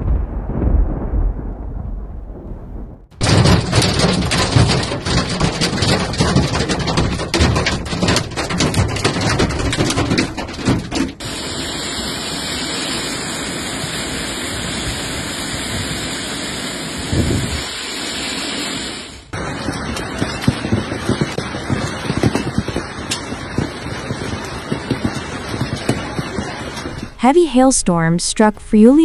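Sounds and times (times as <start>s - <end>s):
hailstones pelting hard surfaces: 3.1s - 12.4s, 18.8s - 27.6s
downpour hiss: 11.2s - 28.5s.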